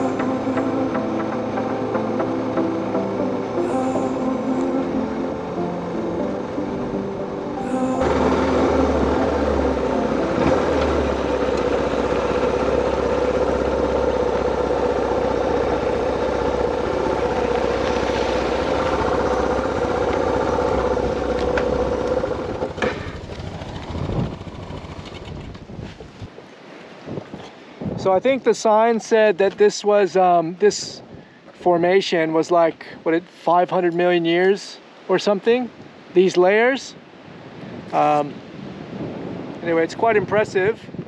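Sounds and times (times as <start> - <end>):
motorcycle engine running: 7.7 - 25.8.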